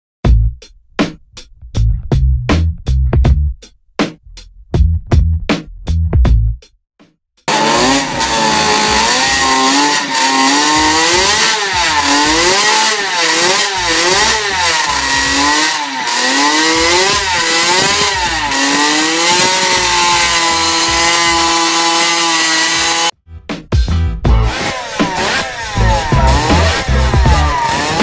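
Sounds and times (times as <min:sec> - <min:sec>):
racing engine revving: 0:07.5 - 0:23.1, 0:24.3 - 0:28.0.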